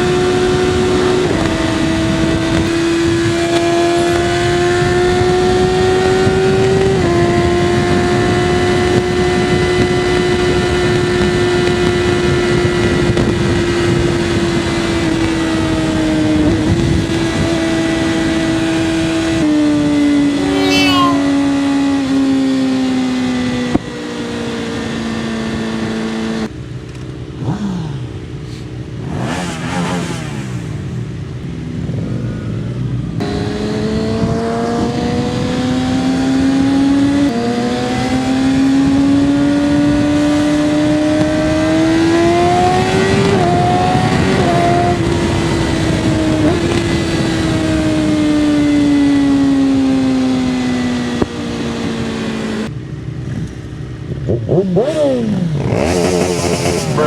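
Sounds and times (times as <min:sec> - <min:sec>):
engines revving: 0:54.3 - 0:57.0.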